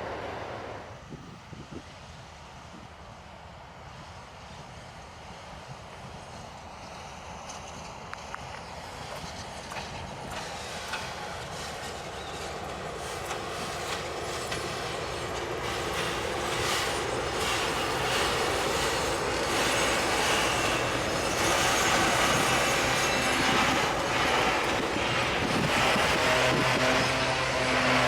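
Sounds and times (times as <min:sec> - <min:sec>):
freight train wheels clattering: 0:07.0 - 0:28.0.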